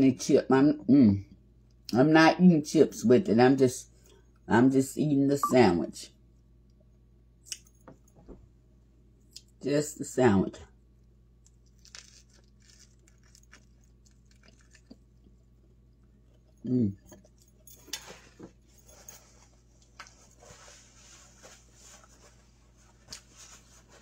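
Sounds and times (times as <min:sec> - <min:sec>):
person chewing food: 0:11.0 - 0:18.6.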